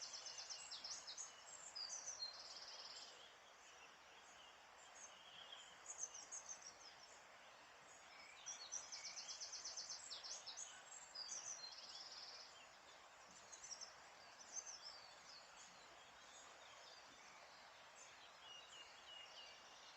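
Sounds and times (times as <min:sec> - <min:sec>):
songbirds chirping: 0:00.0 - 0:19.9
steady background hiss: 0:00.0 - 0:19.9.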